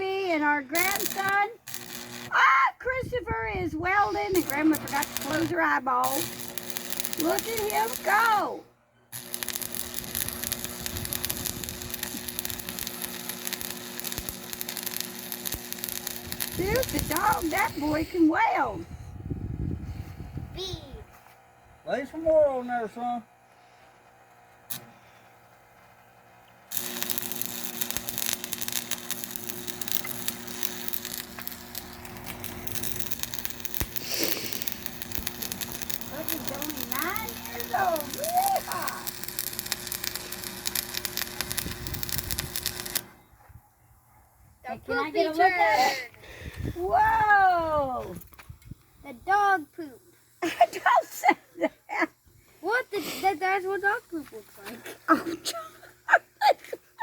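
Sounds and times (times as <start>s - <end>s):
electrical hum: 0.0s - 51.0s
welding arc crackling and sizzling: 0.7s - 2.5s, 3.2s - 18.8s, 24.6s - 25.2s, 25.8s - 43.2s
small pops: 9.1s - 17.7s, 26.7s - 43.1s.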